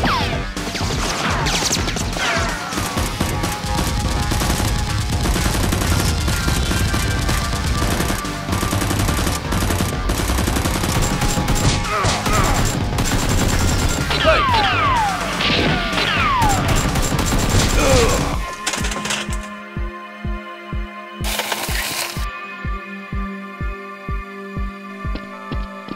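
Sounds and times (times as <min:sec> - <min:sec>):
rapid gunfire: 0:00.0 - 0:19.5
background music: 0:00.0 - 0:25.9.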